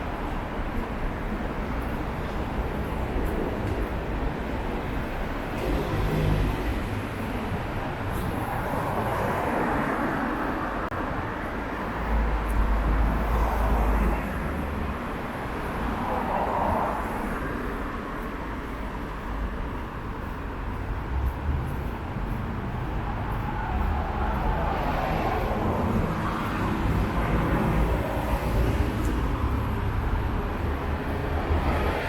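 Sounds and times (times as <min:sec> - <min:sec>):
cars passing: 0:00.0 - 0:32.0.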